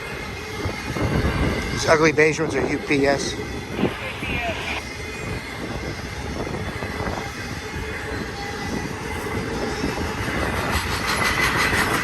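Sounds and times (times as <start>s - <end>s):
steel wheels rumbling on rail: 5.1s - 12.0s.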